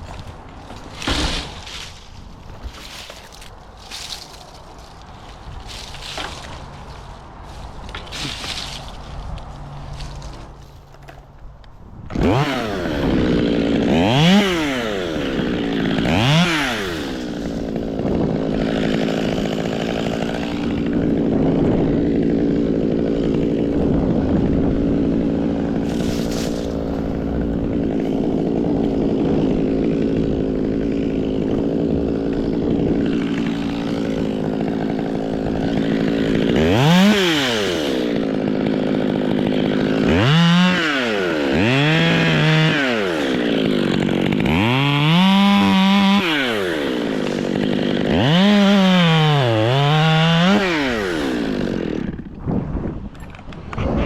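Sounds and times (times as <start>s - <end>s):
chainsaw revving: 12.1s - 52.4s.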